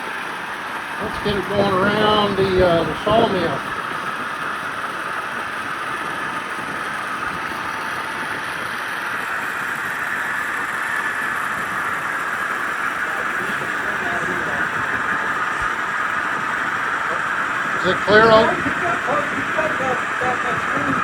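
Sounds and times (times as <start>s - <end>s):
wheels rolling on rails: 18.4s - 21.0s.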